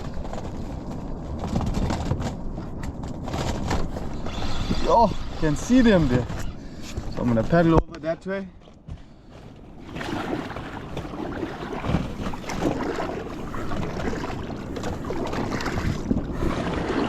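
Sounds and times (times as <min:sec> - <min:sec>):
wind buffeting microphone: 0:00.0 - 0:17.0
paddle strokes splashing: 0:09.4 - 0:17.0.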